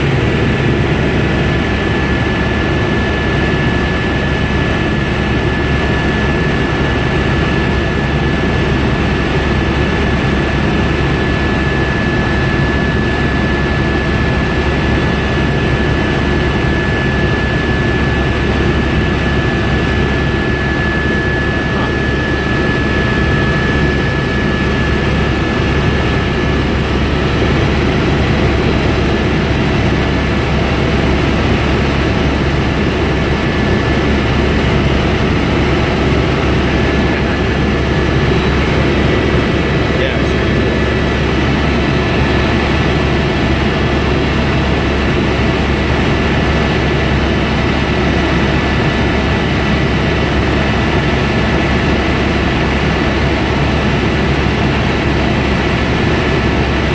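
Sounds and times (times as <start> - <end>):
high whine: 0.0 - 45.1
helicopter engine and rotor: 0.0 - 56.9.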